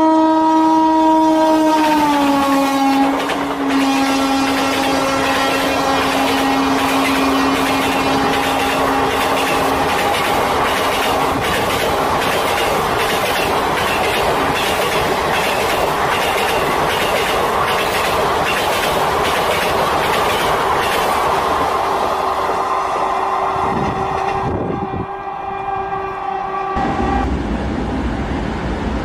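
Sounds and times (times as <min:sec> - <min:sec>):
train wheels clattering: 0:03.0 - 0:21.6.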